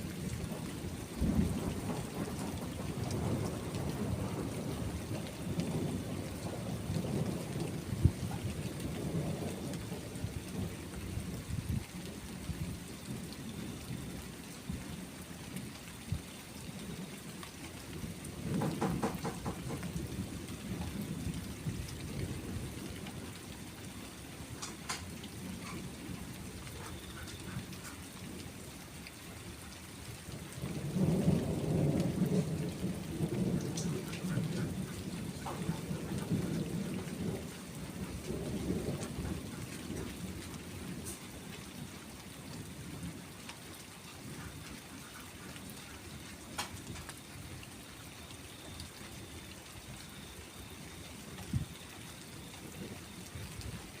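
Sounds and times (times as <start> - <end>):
steady rain: 0.0 - 54.0
rolling thunder: 0.1 - 11.8, 30.5 - 41.2.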